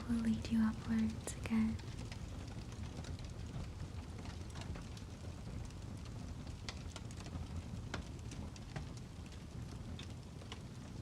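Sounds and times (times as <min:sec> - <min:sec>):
fire crackling and popping: 0:00.0 - 0:11.0
low steady rumble: 0:00.0 - 0:11.0.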